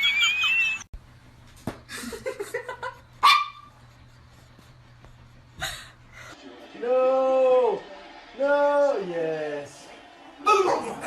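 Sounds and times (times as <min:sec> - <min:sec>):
dog barking: 0:03.2 - 0:03.7.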